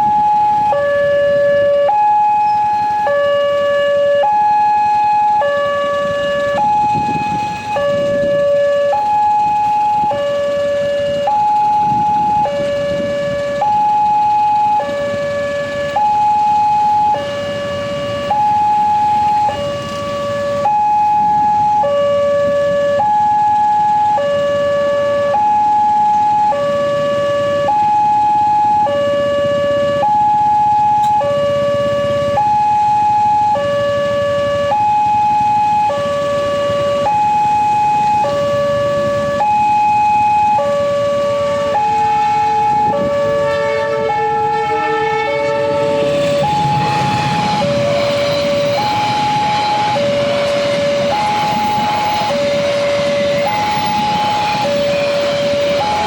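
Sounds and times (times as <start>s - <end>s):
two-tone crossing alarm: 0.0s - 56.0s
low rumbling noise: 38.1s - 56.0s.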